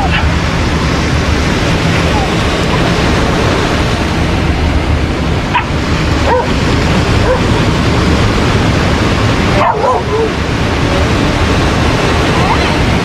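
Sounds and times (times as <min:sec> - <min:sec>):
dog barking and yipping: 0:00.0 - 0:00.4, 0:05.5 - 0:06.6, 0:07.2 - 0:07.5, 0:09.6 - 0:10.4
surf: 0:00.0 - 0:13.0
wind noise on microphone: 0:00.0 - 0:13.0.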